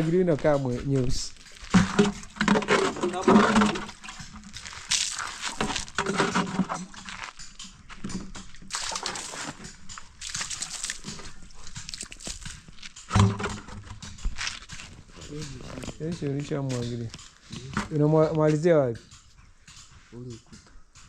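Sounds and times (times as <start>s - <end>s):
water splashing onto plaster: 4.6s - 6.0s, 8.7s - 9.6s, 10.2s - 12.6s.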